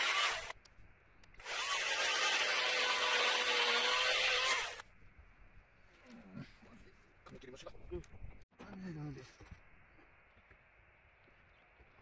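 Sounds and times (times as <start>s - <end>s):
electric chainsaw cutting wood: 0.0s - 0.6s, 1.4s - 4.8s.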